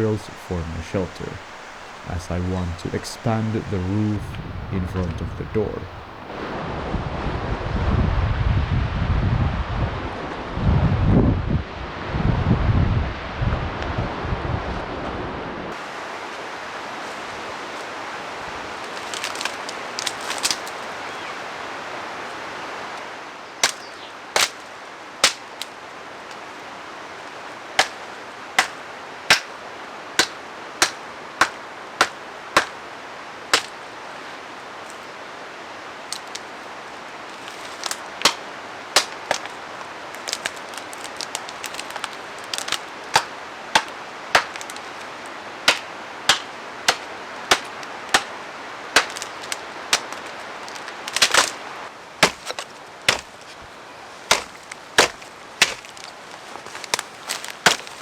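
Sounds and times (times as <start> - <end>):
wood chopping strikes: 0.0 - 6.5, 18.8 - 20.8, 23.6 - 25.7, 27.8 - 28.0, 28.6 - 29.6, 30.2 - 32.8, 33.5 - 33.8, 36.1 - 36.4, 37.3 - 39.6, 40.2 - 45.1, 45.7 - 48.4, 49.0 - 51.6, 52.2 - 53.7, 54.3 - 58.0.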